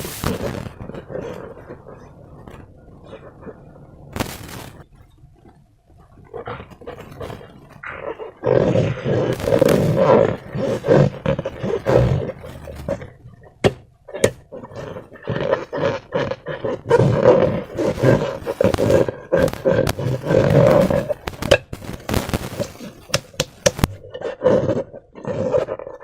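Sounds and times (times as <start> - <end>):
slime squishing in balloons: 0.0 - 26.0
sharp clicks: 17.9 - 24.0.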